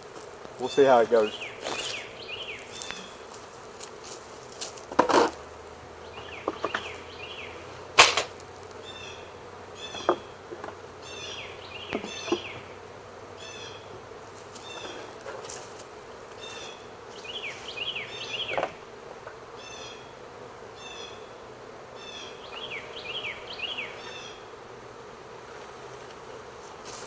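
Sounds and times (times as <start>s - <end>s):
bee swarm buzzing: 0.0s - 27.0s
sharp knocks: 8.0s - 8.4s.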